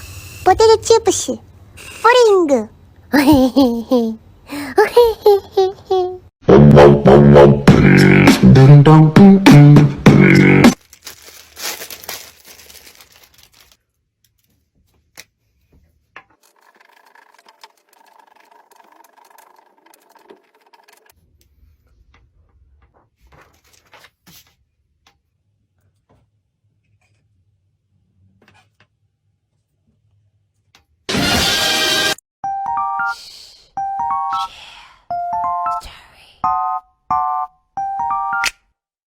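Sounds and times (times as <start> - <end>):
music: 6.5 - 10.8, 31.1 - 33.2, 33.8 - 34.4, 35.1 - 35.8
packaging crinkling and rustling: 10.8 - 15.1, 23.3 - 24.6.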